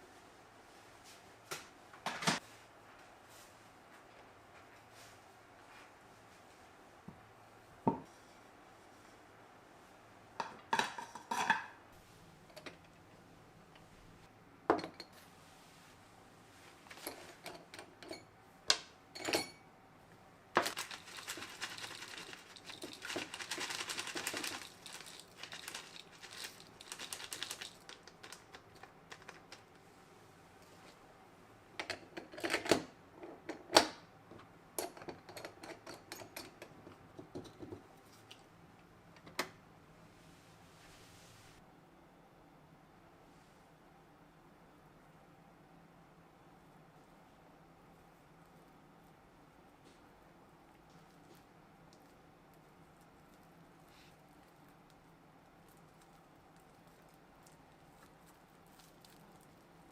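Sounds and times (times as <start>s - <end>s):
dishes and utensils clinking: 19.2s - 19.7s.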